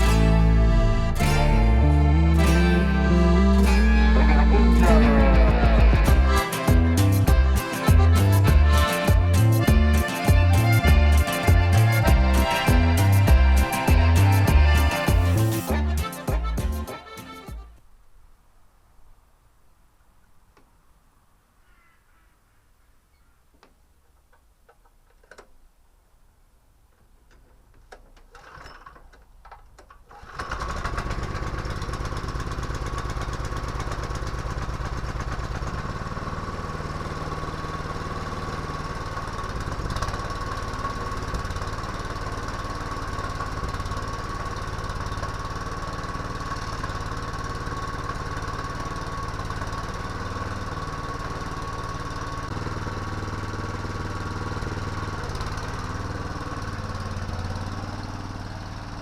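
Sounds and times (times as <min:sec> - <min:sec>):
small engine running: 0:00.0 - 0:17.4, 0:30.2 - 0:59.0.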